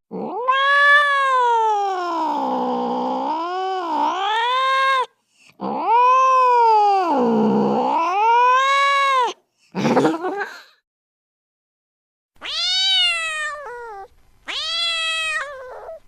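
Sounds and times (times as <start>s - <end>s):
cat yowling: 0.1s - 9.4s, 12.4s - 16.0s.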